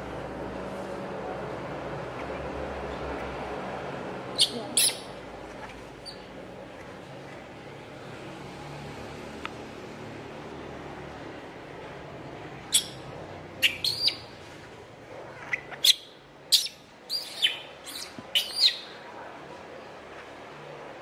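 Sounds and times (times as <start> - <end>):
baby monkey crying: 4.4 - 5.2, 13.6 - 14.2, 15.8 - 18.9.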